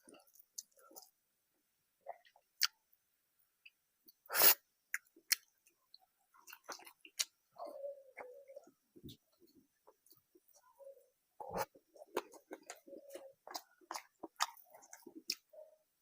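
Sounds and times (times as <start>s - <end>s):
person chewing food: 0.0s - 1.2s, 4.9s - 10.8s, 11.4s - 15.7s.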